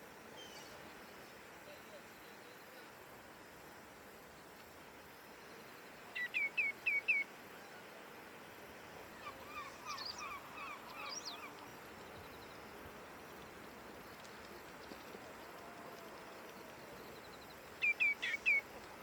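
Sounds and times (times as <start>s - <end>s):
ringing down-slurred bird calls: 9.2s - 11.7s, 16.9s - 18.7s
short twittering bird calls: 17.8s - 18.7s.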